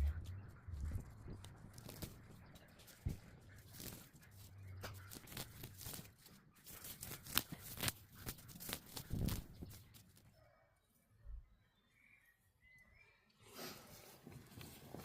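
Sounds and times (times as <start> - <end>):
weeds being pulled from soil: 0.0 - 10.2.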